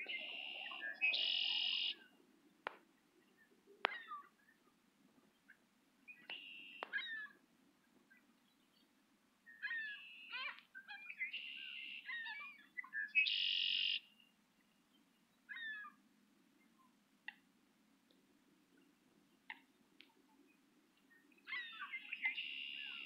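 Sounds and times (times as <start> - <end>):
wild birds calling: 0.0 - 2.1, 6.2 - 7.4, 21.4 - 23.0.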